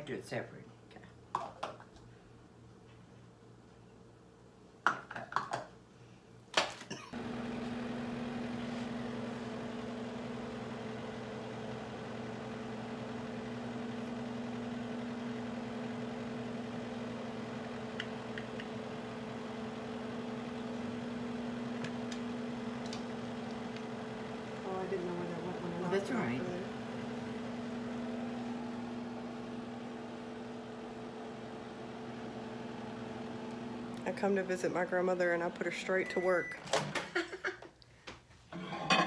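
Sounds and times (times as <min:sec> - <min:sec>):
microwave humming: 0:06.7 - 0:37.5.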